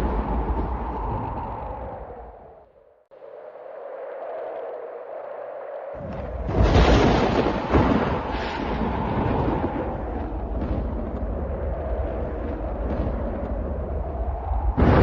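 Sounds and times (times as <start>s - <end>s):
thunder rumbling: 0.0s - 2.6s, 6.0s - 15.0s
thunder crack: 6.0s - 14.0s, 14.7s - 15.0s.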